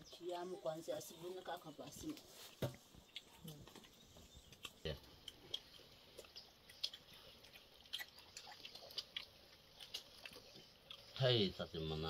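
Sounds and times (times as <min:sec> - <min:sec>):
man chewing rice: 0:02.5 - 0:11.8
wet mouth clicks: 0:03.1 - 0:11.1.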